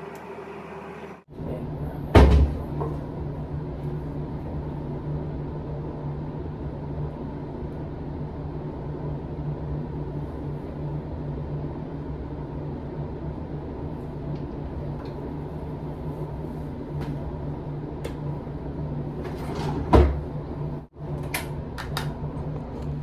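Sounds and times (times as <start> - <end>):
door shutting thump: 2.2 - 2.6.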